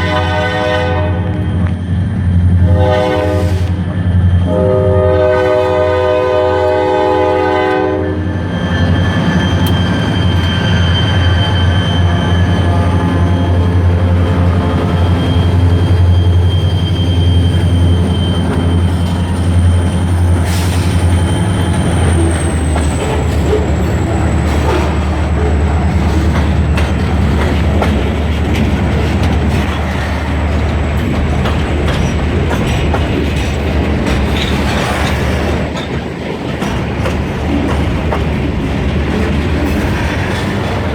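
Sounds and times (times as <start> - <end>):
train horn: 0.0 - 1.6, 2.6 - 3.8, 4.4 - 8.5, 11.9 - 16.0
diesel locomotive rumble: 0.0 - 40.9
rail cars rattling: 0.0 - 40.9
train wheel squeal: 7.5 - 36.0.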